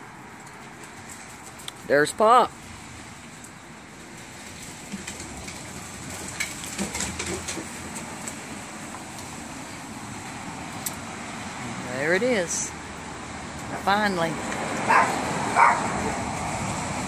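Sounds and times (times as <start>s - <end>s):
vehicle road rumble: 0.0s - 17.0s
trailer rattles and clanks: 4.2s - 8.7s.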